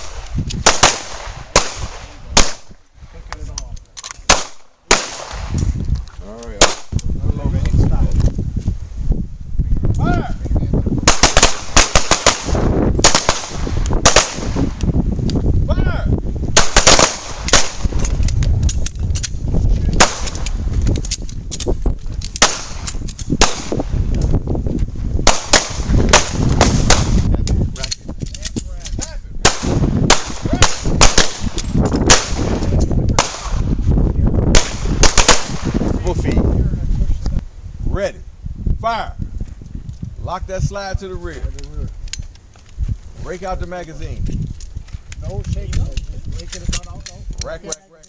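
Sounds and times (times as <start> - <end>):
pistol gunfire: 0.0 - 2.7, 4.3 - 5.6, 11.0 - 14.8, 16.6 - 18.0, 20.0 - 20.5, 22.4 - 23.9, 25.2 - 27.2, 29.4 - 33.7, 34.5 - 35.8.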